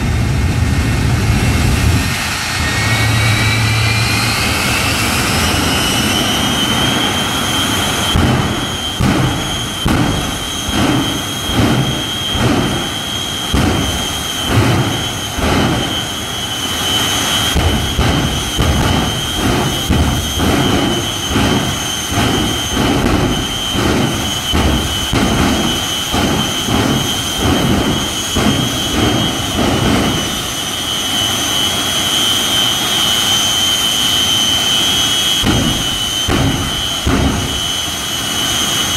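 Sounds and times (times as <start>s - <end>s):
low pulsing rumble: 0.0s - 30.9s
jet engines whining: 0.0s - 38.9s.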